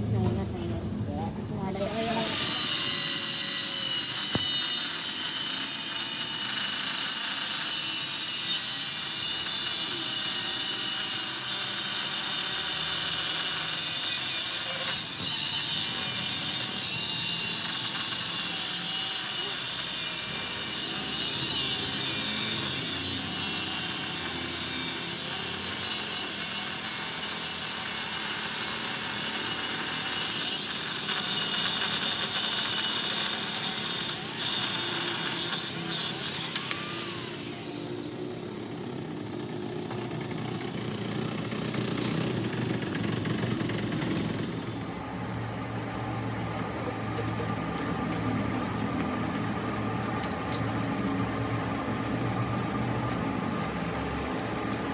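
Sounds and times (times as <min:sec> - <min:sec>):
power tool running with hiss: 0:01.7 - 0:45.0.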